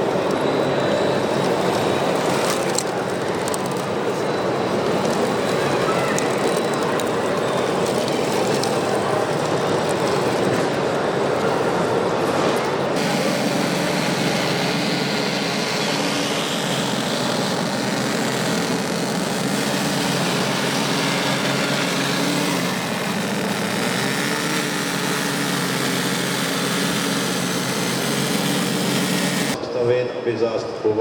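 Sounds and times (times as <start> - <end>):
model engine drone with hiss: 13.0 - 29.6.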